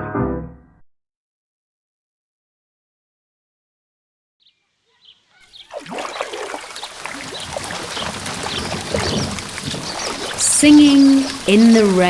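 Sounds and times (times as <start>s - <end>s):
rain falling: 5.9s - 12.0s.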